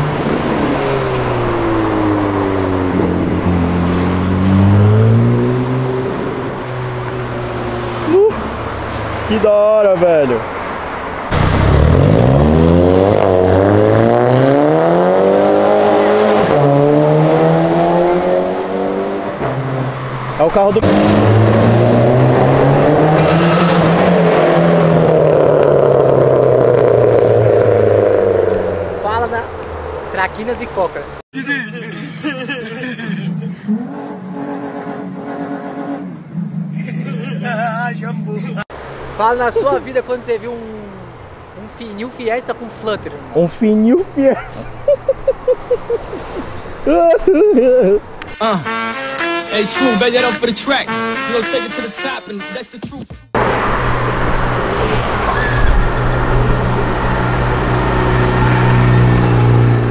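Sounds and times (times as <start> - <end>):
car engine accelerating past: 0.0 - 9.3, 11.3 - 30.1, 53.4 - 59.9.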